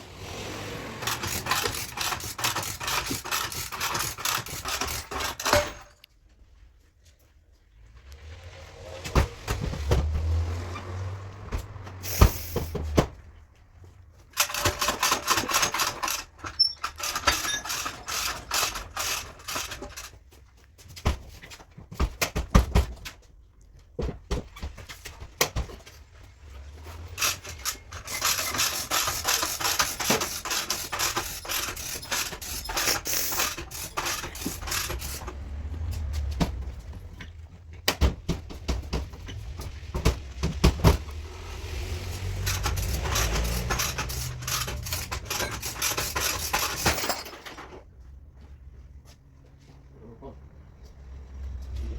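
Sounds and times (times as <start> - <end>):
rubbing on metal: 27.2 - 35.4.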